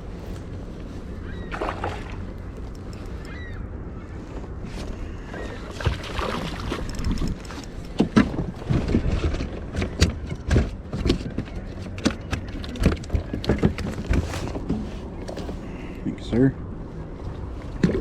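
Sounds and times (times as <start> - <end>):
water noise: 0.0 - 3.4, 5.1 - 9.1
wind noise: 4.2 - 11.7.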